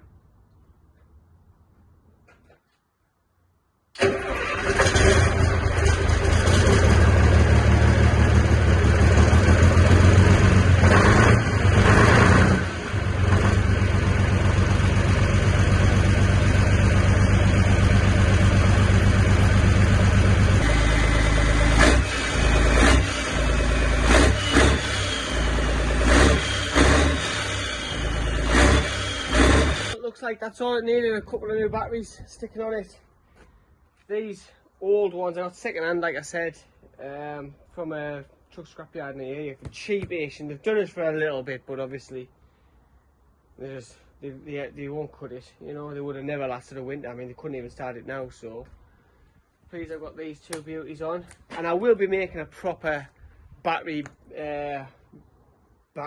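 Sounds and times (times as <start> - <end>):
truck engine starting: 3.9 - 30.0
engine rev surges: 4.0 - 30.0
truck engine running low rumble: 5.0 - 30.0.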